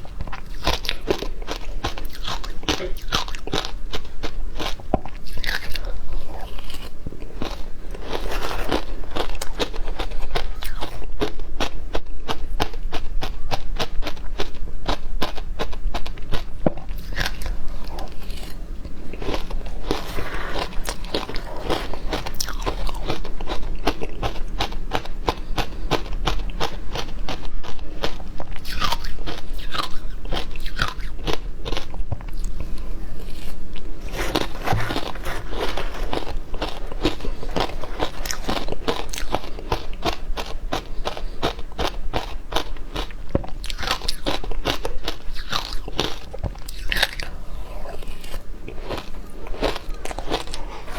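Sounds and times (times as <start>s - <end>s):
frozen ice crunching: 19.2s - 23.4s, 33.9s - 39.9s.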